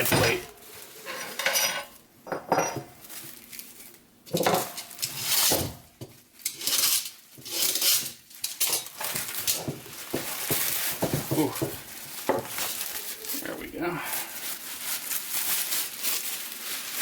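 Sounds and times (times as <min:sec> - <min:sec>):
steel parts clinking: 0:06.4 - 0:09.6.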